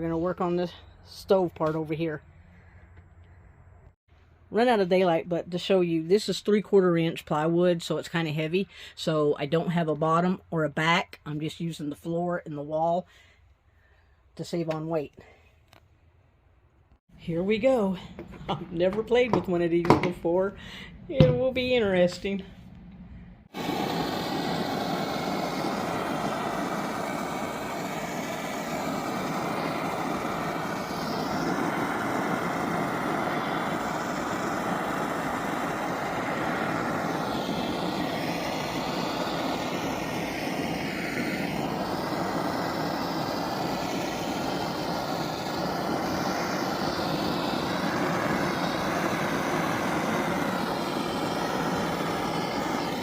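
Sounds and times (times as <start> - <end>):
electric sander on wood: 23.6 - 53.0.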